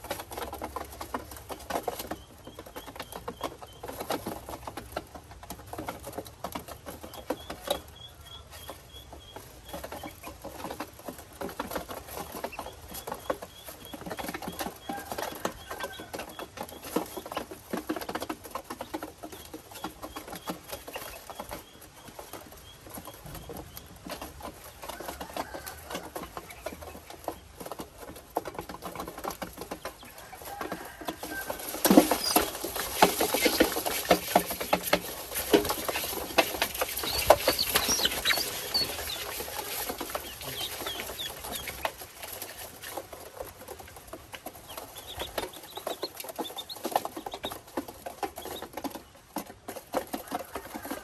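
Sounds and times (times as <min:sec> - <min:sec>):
ducklings peeping: 0:00.0 - 0:51.0
small taps and scratches: 0:22.3 - 0:51.0.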